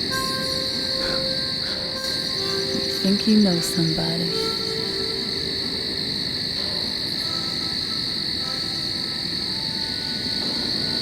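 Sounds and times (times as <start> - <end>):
high-pitched frog or insect chorus: 0.0 - 11.0.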